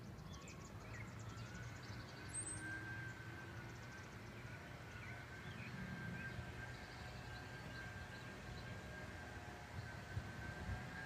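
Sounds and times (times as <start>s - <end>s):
small birds chirping: 0.0s - 9.0s
distant traffic hum: 0.0s - 11.0s
faint steady whine: 0.0s - 11.0s.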